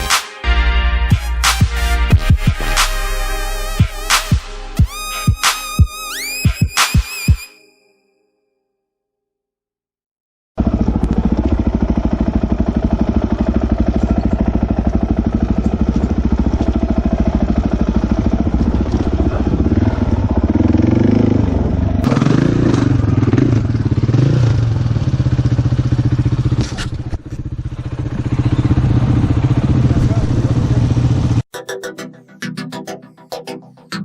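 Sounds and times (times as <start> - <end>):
dirt bike engine revving: 10.6 - 31.4.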